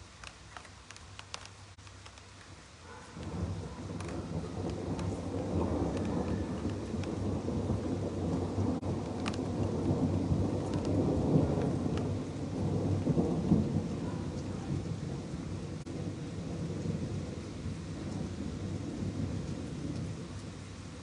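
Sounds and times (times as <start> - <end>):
steady rain: 0.0 - 21.0
thunder rumbling: 2.5 - 21.0.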